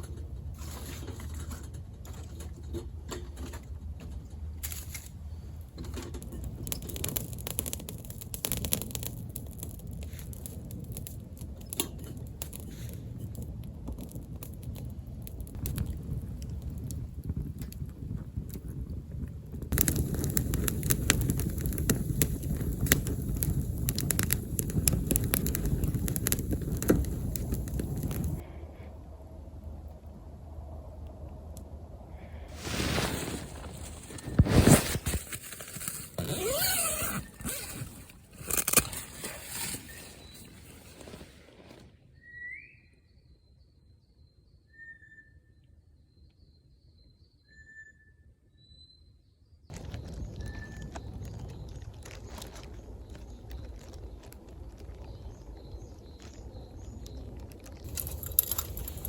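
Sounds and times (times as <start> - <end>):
campfire crackling and popping: 5.8 - 28.4, 32.5 - 41.3, 49.7 - 59.0.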